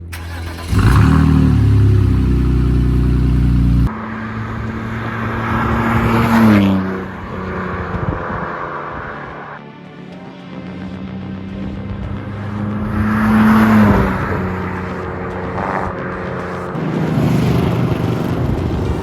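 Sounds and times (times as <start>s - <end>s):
car engine revving: 0.0s - 9.6s, 10.7s - 19.0s.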